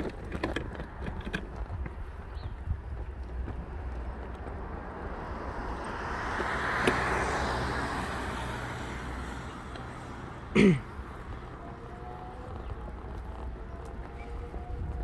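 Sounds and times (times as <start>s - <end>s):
vehicle passing by: 3.6s - 15.0s.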